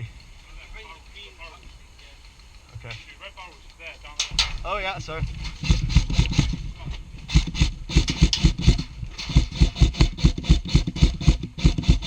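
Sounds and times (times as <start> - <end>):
airsoft rifle firing rapidly: 5.5 - 12.0.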